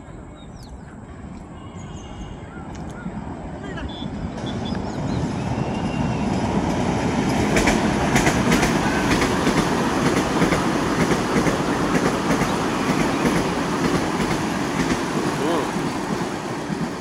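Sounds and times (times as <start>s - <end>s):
train wheels rumbling on rail: 3.1s - 17.0s
wheels clacking over rail joints: 6.4s - 17.0s.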